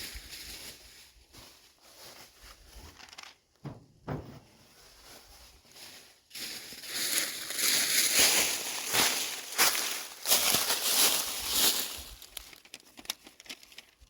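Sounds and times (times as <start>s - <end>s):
rustling and crinkling: 0.0s - 14.0s
faint knocks: 3.6s - 4.6s.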